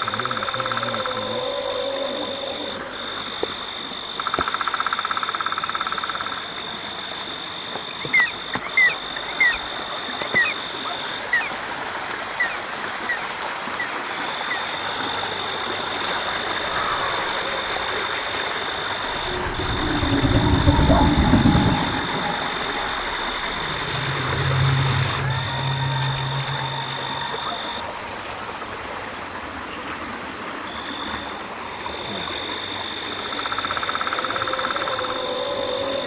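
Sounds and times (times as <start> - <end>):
frog trilling: 0.0 - 3.6, 14.4 - 28.1, 32.0 - 36.0
insects ringing: 0.0 - 11.5, 13.8 - 29.1, 30.7 - 36.0
rain: 0.0 - 36.0.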